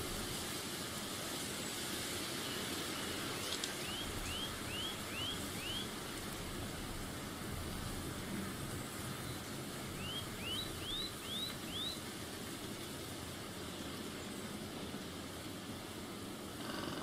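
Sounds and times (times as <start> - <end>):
outdoor background noise: 0.0 - 17.0
bird chirping rising notes: 3.8 - 5.9, 10.0 - 12.0.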